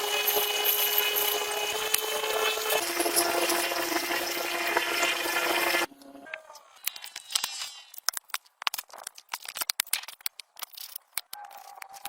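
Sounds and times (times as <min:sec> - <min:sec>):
power tool hissing and humming: 0:00.0 - 0:06.2.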